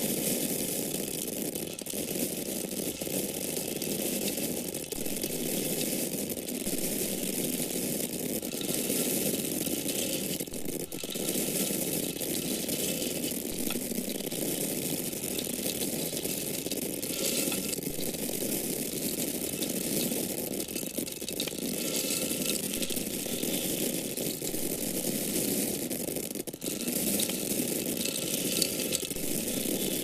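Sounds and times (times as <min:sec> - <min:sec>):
dry grains pouring: 0:00.0 - 0:30.0.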